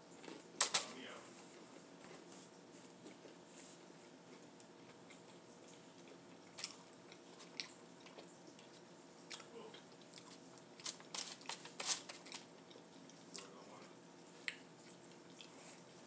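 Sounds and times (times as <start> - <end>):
person chewing with mouth clicks: 4.3 - 10.8, 12.2 - 13.6, 14.4 - 16.0.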